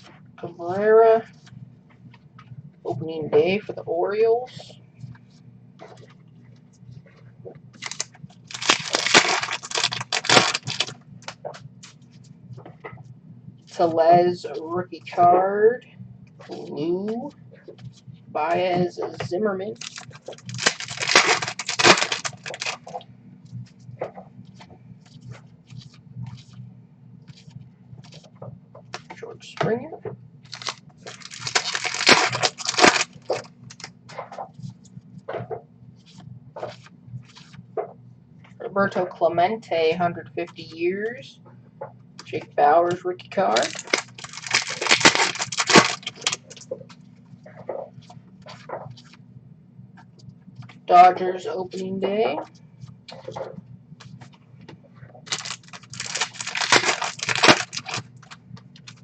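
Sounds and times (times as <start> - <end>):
low hum: 0.0 - 59.0
cards clicking and rustling: 7.8 - 11.4, 19.8 - 22.9, 30.5 - 33.9, 43.5 - 46.6, 55.3 - 59.0
wrapper crinkling: 7.8 - 11.4, 19.8 - 23.0, 30.5 - 33.9, 43.5 - 46.6, 55.2 - 59.0.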